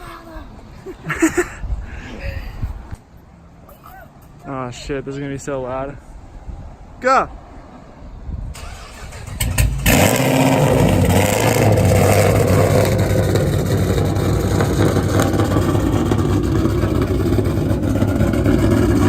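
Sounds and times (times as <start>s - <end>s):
car engine idling loudly: 9.8s - 19.0s.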